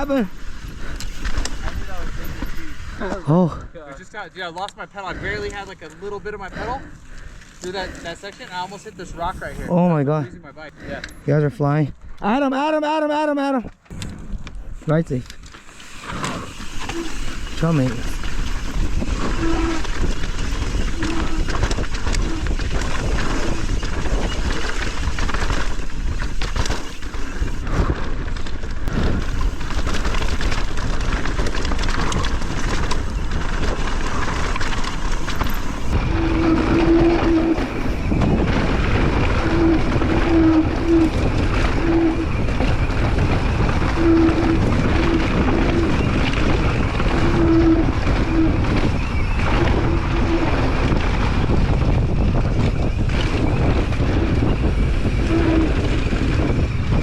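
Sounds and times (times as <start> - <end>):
wind rush on microphone: 0.0 - 4.2, 5.0 - 12.3, 13.9 - 57.0
bike tyre and trail rattle: 0.0 - 57.0.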